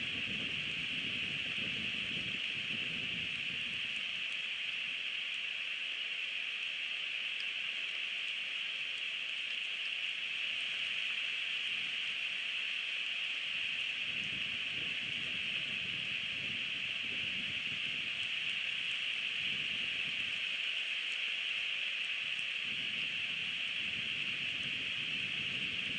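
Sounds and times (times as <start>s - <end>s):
wind rumbling on microphone: 0.0s - 5.0s, 13.5s - 20.6s, 22.2s - 25.9s
rain falling: 0.1s - 25.9s.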